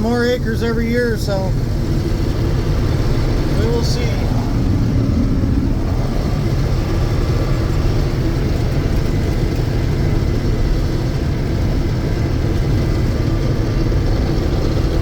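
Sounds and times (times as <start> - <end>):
combine harvester droning: 0.0 - 15.0.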